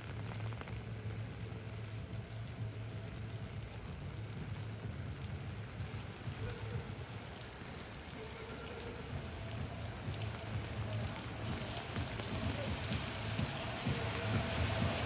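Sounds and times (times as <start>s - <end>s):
low steady rumble: 0.0s - 6.4s
rain pattering on hard surfaces: 0.0s - 15.0s.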